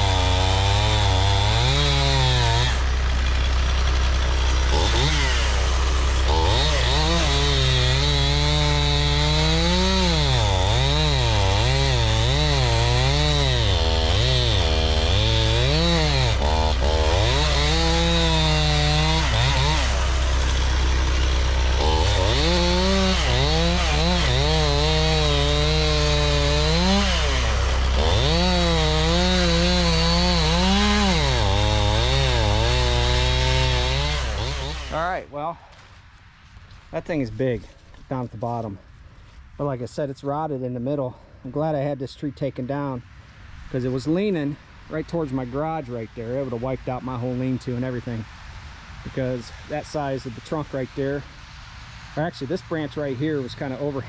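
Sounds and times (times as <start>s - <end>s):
chainsaw cutting logs: 0.0s - 35.9s.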